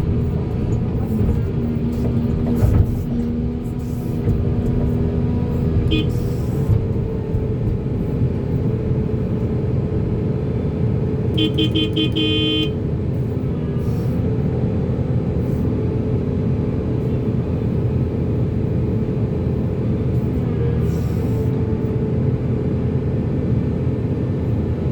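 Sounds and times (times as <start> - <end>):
excavator diesel engine running: 0.0 - 24.9
vehicle horn toots: 5.9 - 6.3, 11.3 - 12.8.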